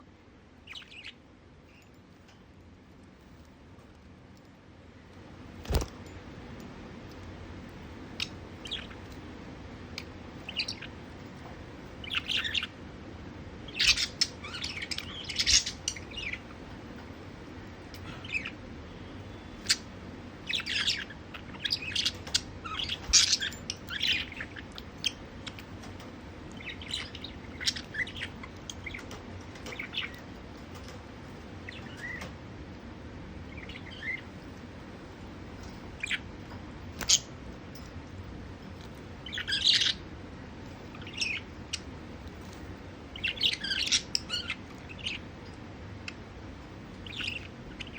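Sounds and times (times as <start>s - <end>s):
faint low hum: 0.0s - 47.9s
budgerigars chirping: 0.6s - 1.9s, 8.0s - 9.3s, 9.9s - 11.2s, 11.9s - 12.8s, 13.6s - 16.8s, 17.9s - 32.3s, 33.4s - 34.4s, 35.6s - 37.4s, 38.7s - 42.2s, 42.9s - 47.9s.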